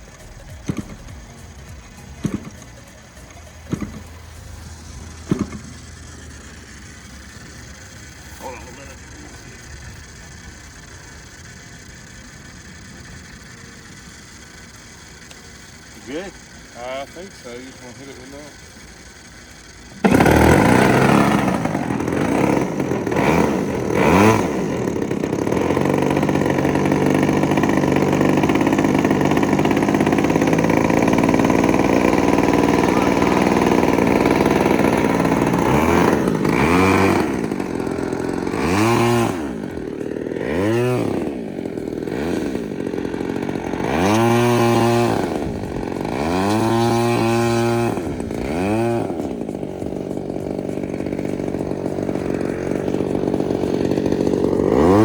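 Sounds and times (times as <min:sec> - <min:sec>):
model airplane engine revving: 0:00.0 - 0:55.0.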